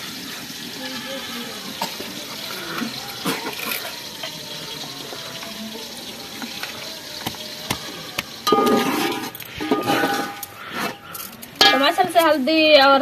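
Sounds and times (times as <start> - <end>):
masala sizzling in a pot: 0.0 - 13.0
metal clatter: 8.5 - 10.5.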